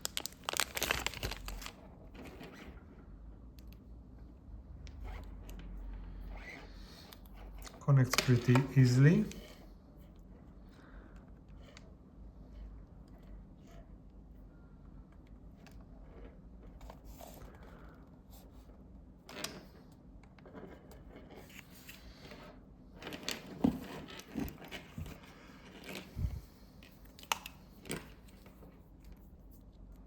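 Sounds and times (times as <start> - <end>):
cables rustling: 0.0 - 3.0, 20.6 - 29.8.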